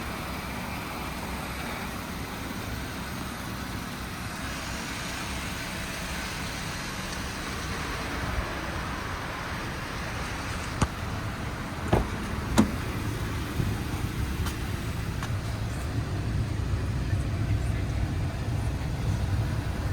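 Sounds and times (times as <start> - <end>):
motor vehicle rumble: 0.0 - 19.9
sharp knocks: 11.9 - 12.8.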